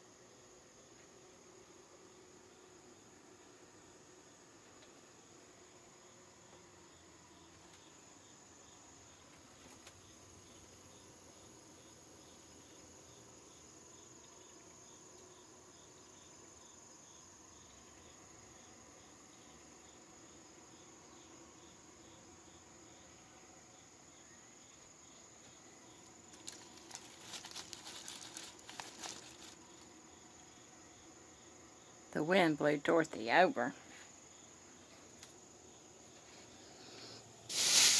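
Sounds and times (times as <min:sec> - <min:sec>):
faint insect chirping: 0:00.0 - 0:37.9
crackling and clicking: 0:26.3 - 0:29.6.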